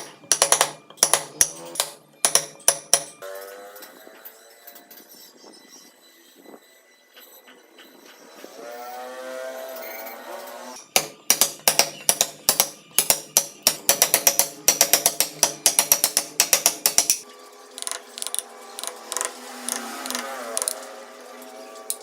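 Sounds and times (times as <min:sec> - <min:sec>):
background music: 0:00.0 - 0:05.2, 0:09.3 - 0:22.0
knocks of wood carving: 0:10.8 - 0:17.2, 0:17.8 - 0:20.8.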